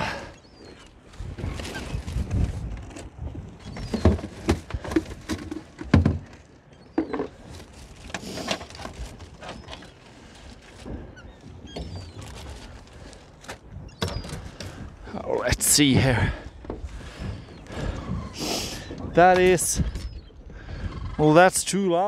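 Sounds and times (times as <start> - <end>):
wind rumble on microphone: 1.0 - 5.3.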